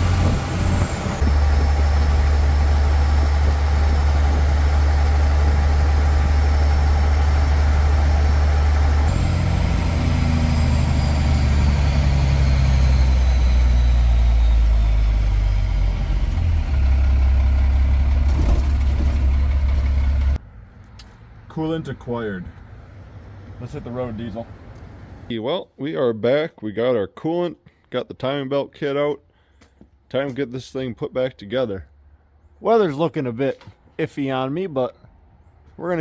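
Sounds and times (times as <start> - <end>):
vehicle engine droning while driving: 0.0 - 25.3.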